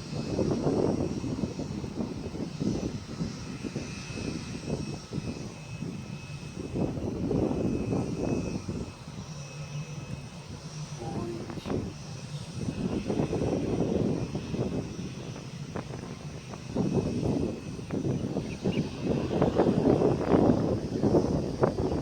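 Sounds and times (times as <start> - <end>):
jet engine whine: 0.0 - 22.0
low uneven rumble: 10.9 - 14.5.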